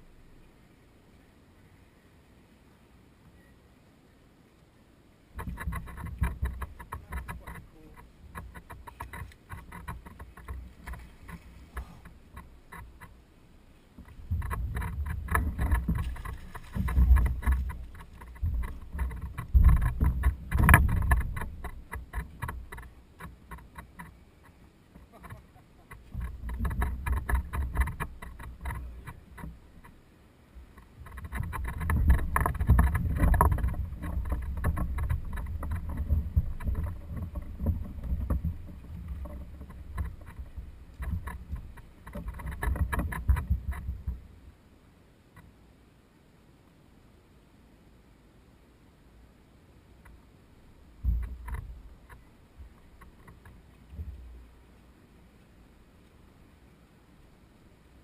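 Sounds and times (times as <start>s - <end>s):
small clicks and knocks: 5.4s - 13.2s, 14.0s - 30.0s, 30.6s - 44.2s, 51.0s - 54.4s.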